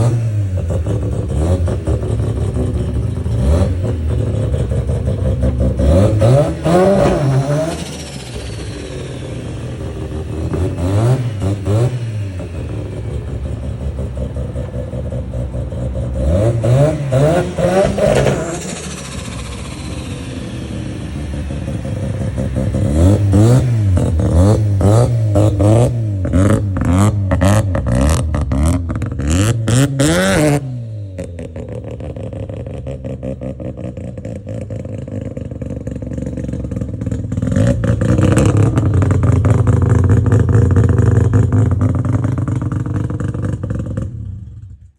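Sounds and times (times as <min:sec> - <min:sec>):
rotary engine revving: 0:00.0 - 0:35.0.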